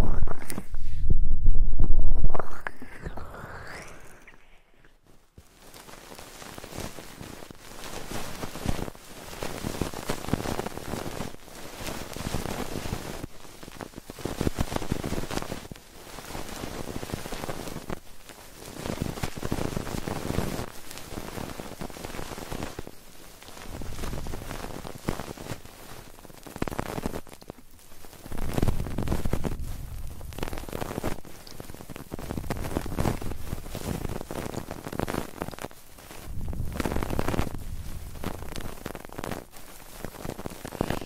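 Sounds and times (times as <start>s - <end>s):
crackling rustle: 3.7s - 41.0s.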